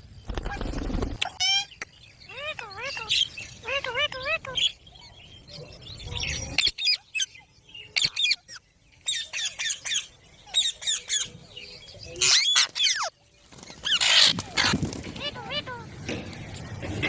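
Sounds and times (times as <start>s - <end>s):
parrots squawking: 1.3s - 4.7s, 12.2s - 13.1s, 13.8s - 15.9s.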